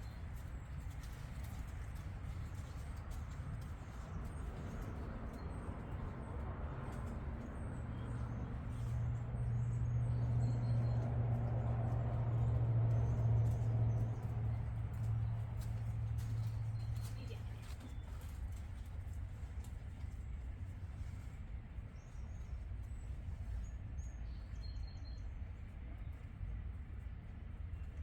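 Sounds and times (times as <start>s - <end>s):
low rumbling background: 0.0s - 28.0s
engine humming: 8.0s - 18.4s.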